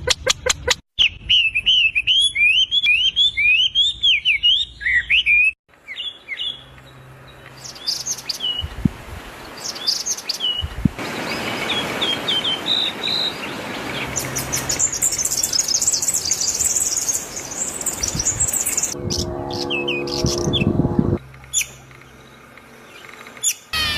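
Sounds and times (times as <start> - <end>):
birds warbling song: 1.0 - 23.9
high short bird chirps: 23.4 - 23.9.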